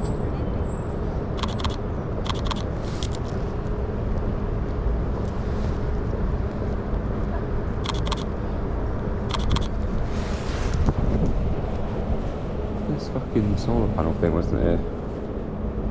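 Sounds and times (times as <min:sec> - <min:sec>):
low city and wind rumble: 0:00.0 - 0:15.9
camera shutter clicks: 0:01.4 - 0:03.2, 0:07.8 - 0:08.3, 0:09.3 - 0:09.7.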